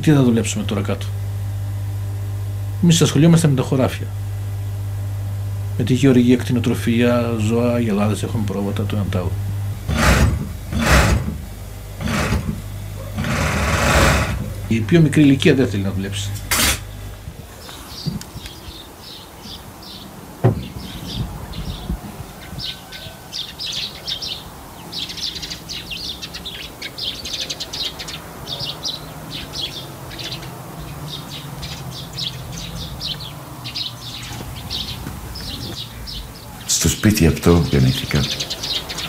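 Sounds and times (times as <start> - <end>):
small birds chirping: 14.4 - 39.0.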